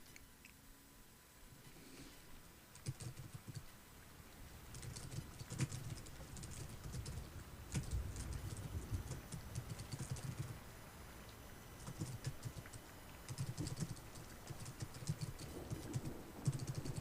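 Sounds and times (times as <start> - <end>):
computer keyboard typing: 2.7 - 3.7, 4.7 - 10.6, 11.8 - 17.0.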